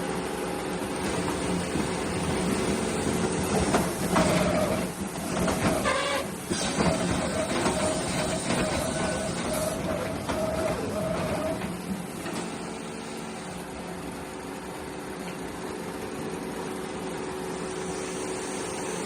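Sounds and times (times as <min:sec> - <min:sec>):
machine hissing: 0:01.0 - 0:11.6, 0:17.6 - 0:19.0.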